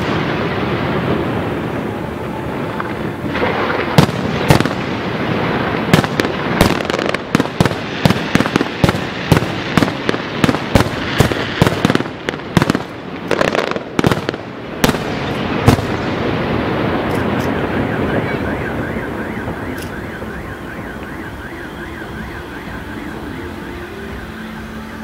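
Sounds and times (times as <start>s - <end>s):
firework shells bursting: 2.7s - 17.7s.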